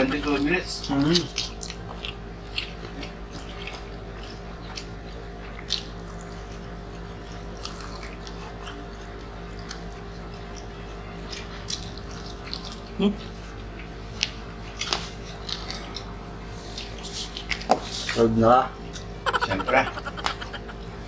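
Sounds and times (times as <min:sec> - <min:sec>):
lip smacks while chewing: 0:00.9 - 0:12.9.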